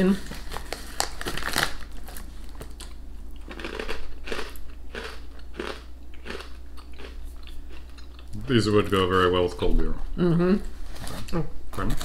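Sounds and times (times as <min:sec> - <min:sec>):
snack bag rustling: 0:00.1 - 0:07.0
crunchy chewing: 0:00.4 - 0:08.5.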